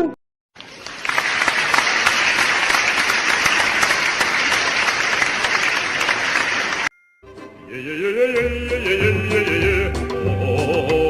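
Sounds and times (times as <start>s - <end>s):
applause: 0.6s - 6.9s
background music rising melody: 7.0s - 11.0s.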